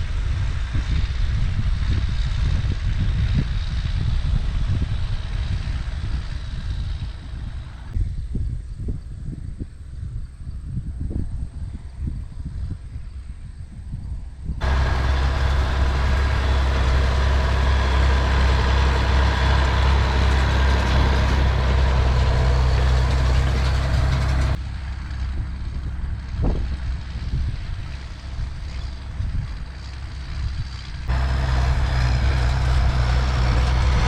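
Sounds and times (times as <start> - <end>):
tractor engine running: 2.8 - 8.0, 14.6 - 34.0.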